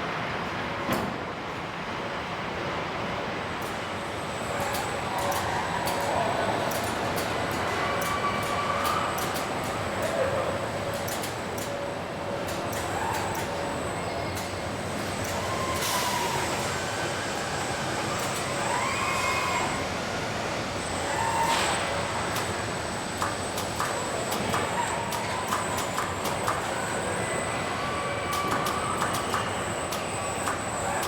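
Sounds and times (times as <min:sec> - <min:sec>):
machinery with high whine: 0:03.0 - 0:31.0
sharp clicks: 0:23.2 - 0:26.7, 0:28.3 - 0:30.6.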